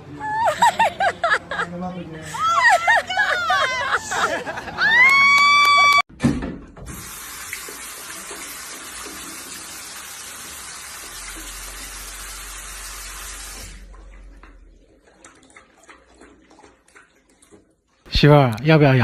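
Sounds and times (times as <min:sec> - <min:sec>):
water running from a tap: 0:06.8 - 0:17.4.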